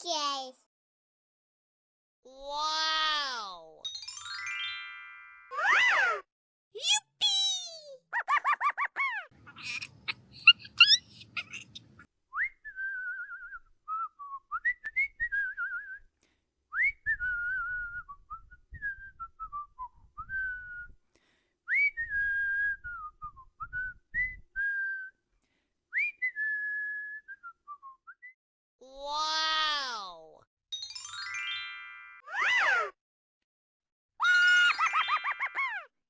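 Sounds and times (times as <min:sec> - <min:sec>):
person whistling a tune: 0:12.4 - 0:16.1, 0:16.7 - 0:21.0, 0:21.7 - 0:25.2, 0:25.9 - 0:28.4.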